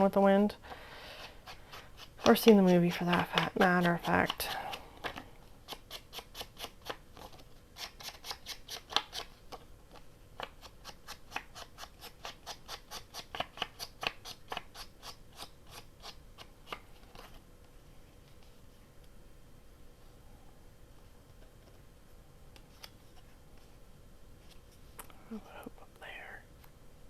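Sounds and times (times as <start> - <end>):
scissors snipping paper: 1.4 - 16.8.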